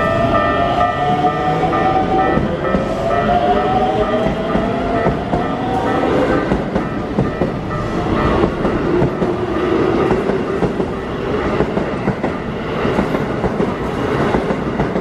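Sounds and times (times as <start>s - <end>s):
train hum: 0.0s - 15.0s.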